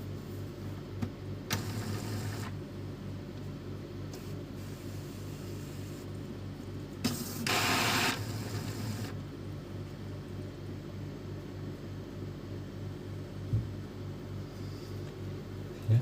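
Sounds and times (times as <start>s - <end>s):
printer low hum: 0.0s - 16.0s
printer motor noise: 1.4s - 2.6s, 7.0s - 9.2s.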